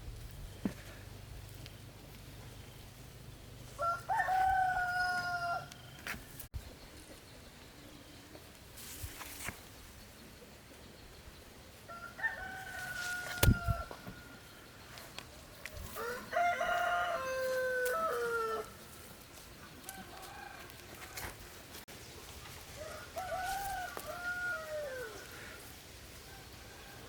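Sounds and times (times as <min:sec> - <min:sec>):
rooster crowing: 0:03.8 - 0:06.0, 0:11.9 - 0:14.4, 0:15.9 - 0:18.8, 0:22.8 - 0:25.4.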